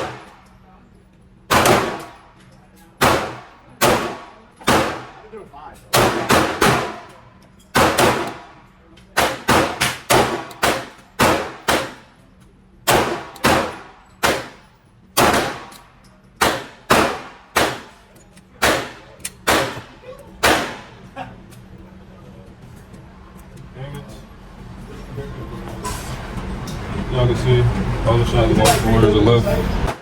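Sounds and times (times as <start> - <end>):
pistol shots echoing indoors: 0.0 - 0.5, 1.5 - 2.2, 3.0 - 5.2, 5.9 - 12.2, 12.8 - 15.8, 16.4 - 18.0, 18.6 - 21.1.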